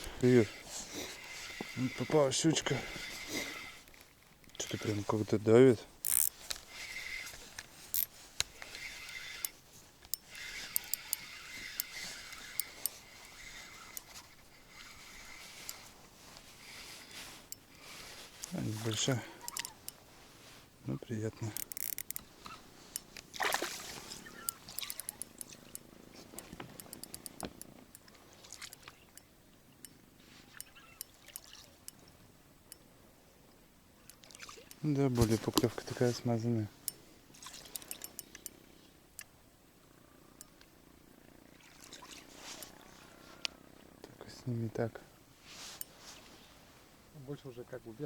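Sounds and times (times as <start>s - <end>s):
fishing reel whirring: 0.0s - 20.0s, 21.3s - 29.3s, 30.4s - 32.0s, 37.3s - 38.5s
reel clicking: 0.0s - 20.1s, 21.0s - 32.9s, 34.0s - 39.4s, 45.7s - 46.0s
light clicks: 18.4s - 20.0s, 23.9s - 32.8s, 36.8s - 39.3s
water dripping and trickling: 30.6s - 31.7s.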